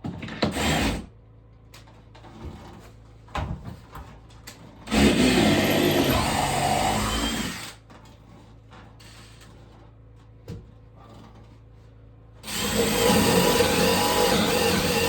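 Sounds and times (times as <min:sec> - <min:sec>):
power tool running: 0:04.9 - 0:07.8, 0:12.4 - 0:15.0.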